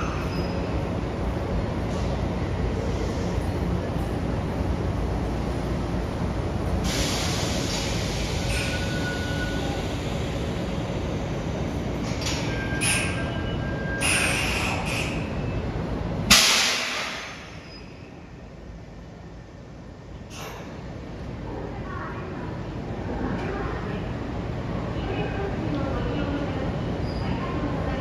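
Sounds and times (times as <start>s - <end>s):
electric train rumbling: 0.0s - 28.0s
loud hiss of air: 6.8s - 8.9s, 16.3s - 17.6s
brake squeals: 8.4s - 9.7s.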